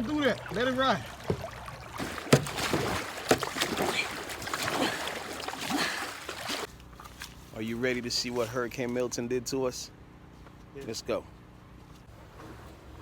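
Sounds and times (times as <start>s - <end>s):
floodwater sloshing and splashing: 0.0s - 7.5s
sharp knocks: 2.3s - 3.6s.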